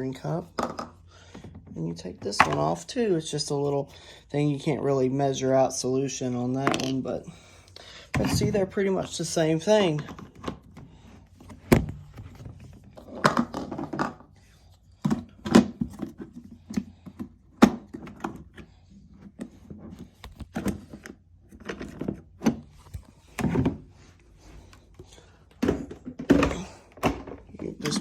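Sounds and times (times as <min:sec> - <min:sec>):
plastic tanks clunking: 0:08.1 - 0:14.3, 0:25.5 - 0:28.0.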